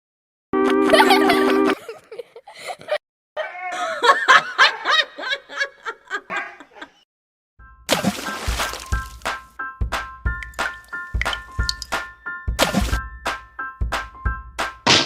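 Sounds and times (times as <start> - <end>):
music: 0.6 - 1.8, 7.6 - 15.0
person snickering and chuckling: 0.9 - 7.0.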